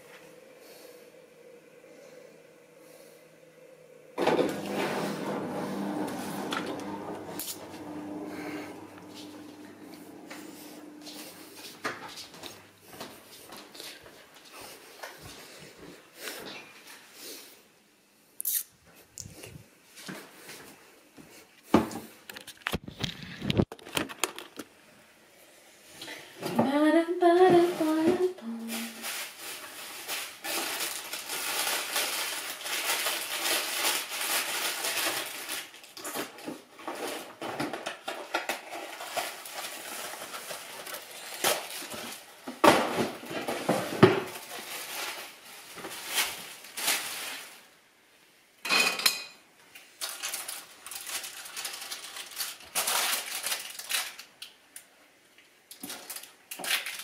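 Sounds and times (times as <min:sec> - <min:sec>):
dishes and cutlery clinking: 0:48.6 - 0:49.4.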